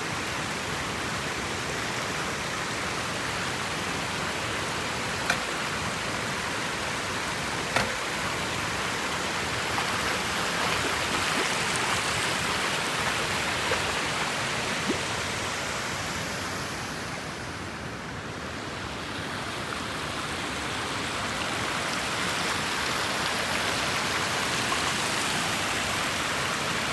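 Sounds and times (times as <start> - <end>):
water rushing: 0.0 - 26.9
faint small knocks: 7.7 - 8.2.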